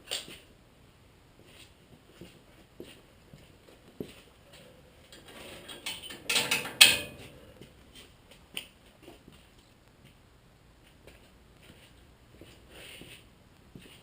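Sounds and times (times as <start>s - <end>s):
metal parts clattering and ratcheting: 5.1s - 7.4s.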